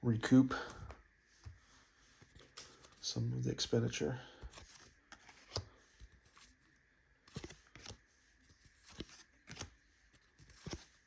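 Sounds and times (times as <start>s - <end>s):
trading cards slapping and sliding: 4.4s - 6.6s, 7.3s - 11.0s.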